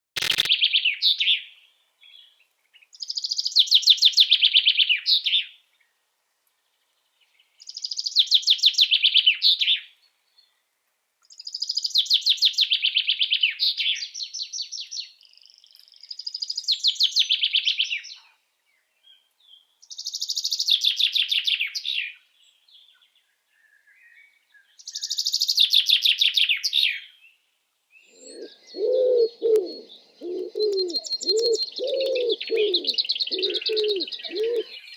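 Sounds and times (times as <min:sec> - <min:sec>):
songbird trilling: 0:00.2 - 0:01.4, 0:28.0 - 0:34.9
dove cooing: 0:28.1 - 0:34.8.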